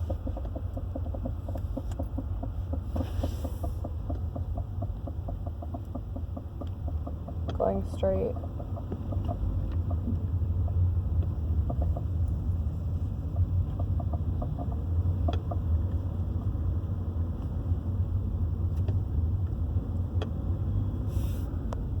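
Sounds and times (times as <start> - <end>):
vehicle driving rumble: 0.0 - 22.0.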